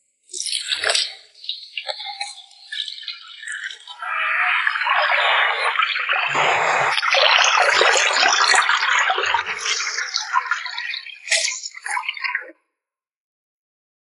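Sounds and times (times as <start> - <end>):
water running and splashing: 4.2 - 11.0.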